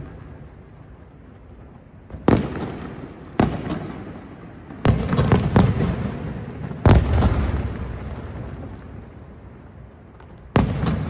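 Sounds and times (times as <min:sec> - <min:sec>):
firework shells bursting: 0:02.2 - 0:09.2.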